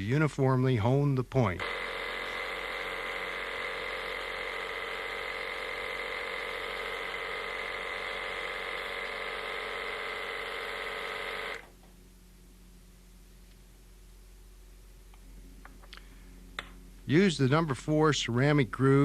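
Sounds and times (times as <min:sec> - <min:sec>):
electric motor high whine: 0:01.6 - 0:11.8.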